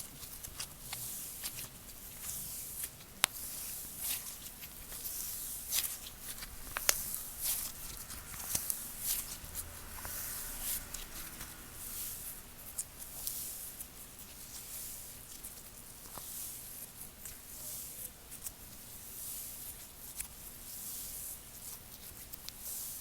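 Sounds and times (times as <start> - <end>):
slime squishing with sticky clicks: 0.0 - 9.4.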